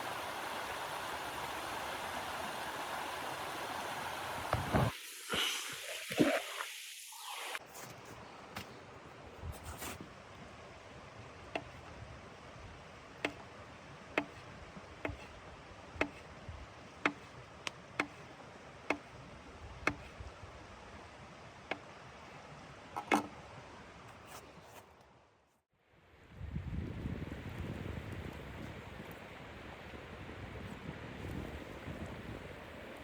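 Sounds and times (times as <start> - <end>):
low hiss: 0.0 - 24.3.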